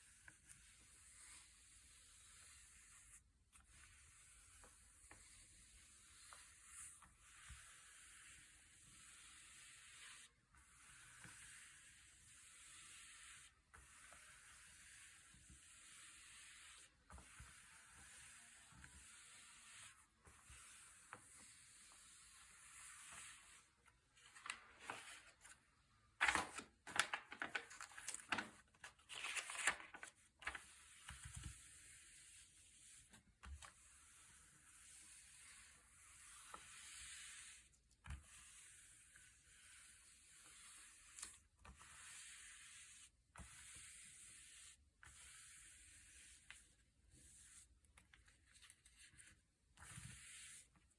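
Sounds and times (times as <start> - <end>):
paper rustling: 24.2 - 25.6, 26.2 - 30.6
glossy pages turning: 26.2 - 30.6.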